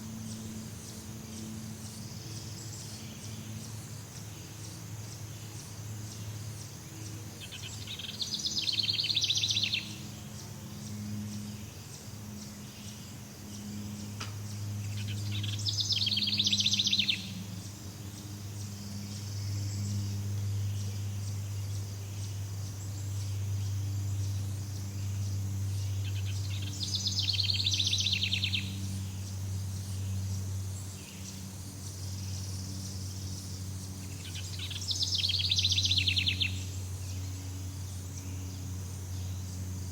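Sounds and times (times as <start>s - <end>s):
rapid pulsed trilling call: 0.0s - 39.9s
steady low drone: 0.0s - 39.9s.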